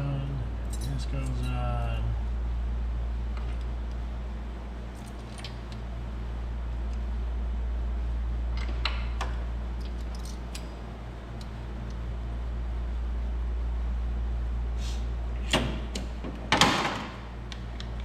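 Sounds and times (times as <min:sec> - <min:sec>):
steady low hum: 0:00.0 - 0:18.0
metal engine parts clinking: 0:00.6 - 0:01.6, 0:09.8 - 0:11.5.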